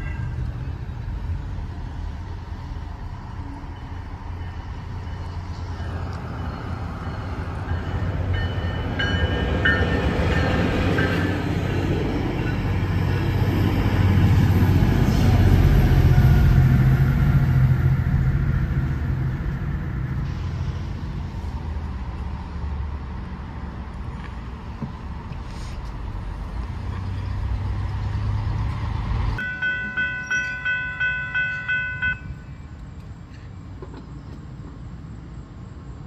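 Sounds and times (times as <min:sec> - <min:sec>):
train rumbling past: 0:00.0 - 0:36.0
short high tones: 0:29.4 - 0:32.4.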